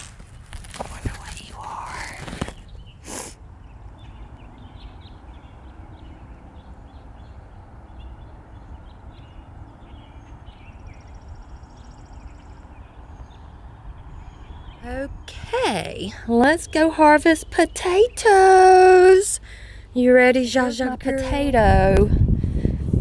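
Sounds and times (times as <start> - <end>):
rustle: 0.0 - 3.4.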